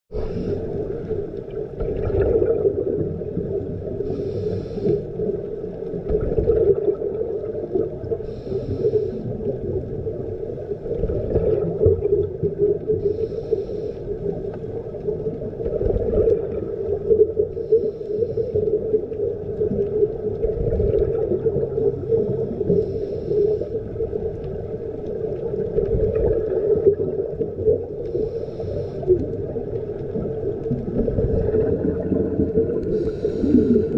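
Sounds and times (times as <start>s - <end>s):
regulator breathing hiss: 0.1s - 0.9s, 4.0s - 5.3s, 8.2s - 9.4s, 13.0s - 14.3s, 17.6s - 18.7s, 22.2s - 23.9s, 28.0s - 29.2s, 32.9s - 33.9s
steady underwater drone: 0.1s - 33.9s
underwater bubbling rumble: 0.1s - 33.9s.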